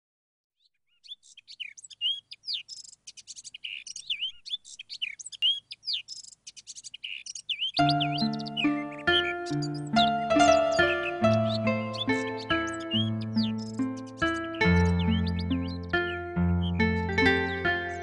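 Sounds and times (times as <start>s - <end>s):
birds chirping and whistling: 0.6s - 18.0s
music track with pitched notes: 7.8s - 18.0s.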